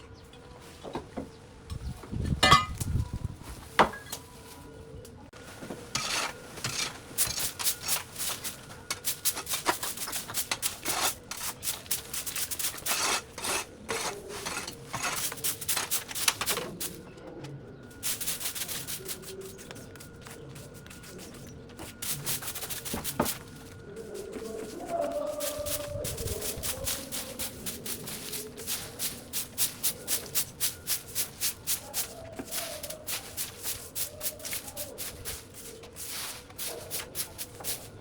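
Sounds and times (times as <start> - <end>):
rapid scraping and rubbing strokes: 18.0 - 38.0.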